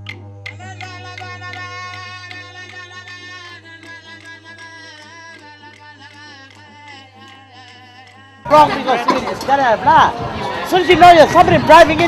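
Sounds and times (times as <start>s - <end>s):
didgeridoo drone: 0.0s - 8.5s.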